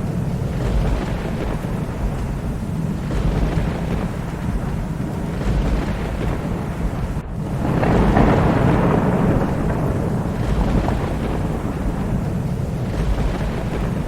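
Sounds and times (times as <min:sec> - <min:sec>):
heavy rain: 0:00.0 - 0:14.0
low rumble of thunder: 0:00.0 - 0:14.0.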